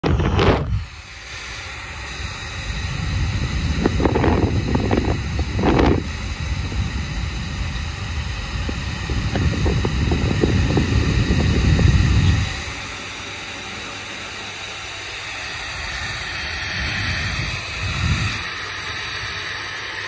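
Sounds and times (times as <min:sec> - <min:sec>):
hairdryer blowing: 0:00.0 - 0:20.0.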